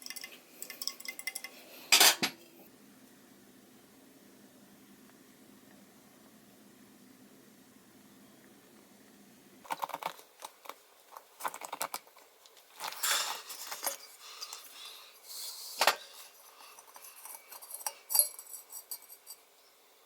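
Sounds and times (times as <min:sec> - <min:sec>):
metal scraping on work surface: 0:15.5 - 0:19.5
small metal parts clinking: 0:16.1 - 0:19.5.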